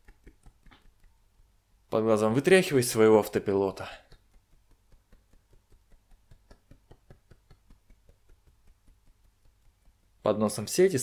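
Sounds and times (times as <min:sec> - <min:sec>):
fingertip tapping on face: 0:00.0 - 0:01.6, 0:03.8 - 0:10.2.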